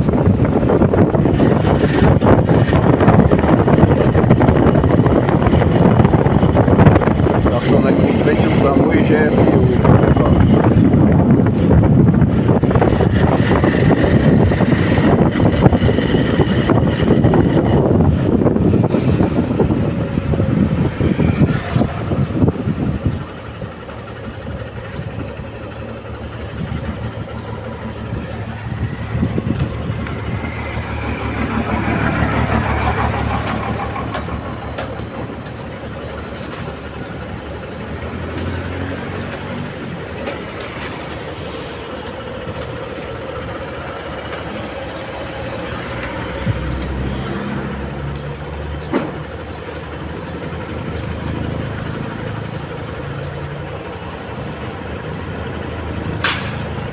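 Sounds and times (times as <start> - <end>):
vehicle passing: 0.0 - 23.0, 26.5 - 35.7, 44.7 - 48.9
vehicle engine and road noise: 0.0 - 56.9.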